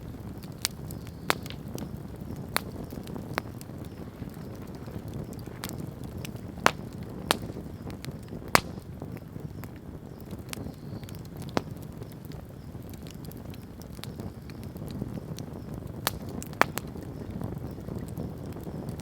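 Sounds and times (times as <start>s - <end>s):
campfire crackling: 0.0s - 19.0s
loud sharp pops: 0.6s - 9.8s, 10.4s - 12.0s, 16.0s - 17.2s.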